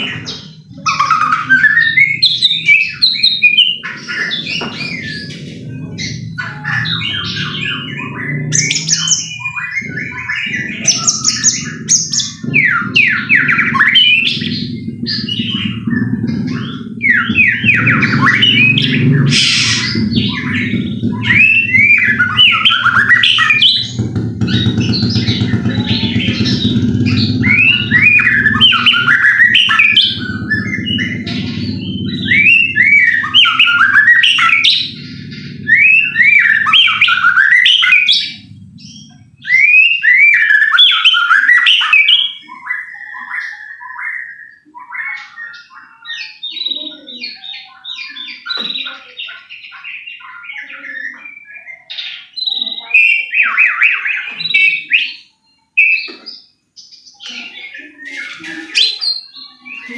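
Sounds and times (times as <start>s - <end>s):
bird singing whistled phrases: 0.0s - 56.2s
low hum: 14.3s - 37.4s, 38.1s - 39.6s.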